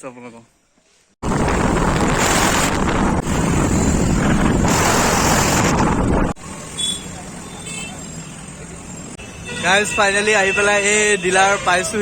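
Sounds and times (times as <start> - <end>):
heavy wind buffeting microphone: 1.2 - 6.4
traffic: 1.2 - 12.0
vehicle and road noise: 1.2 - 12.0.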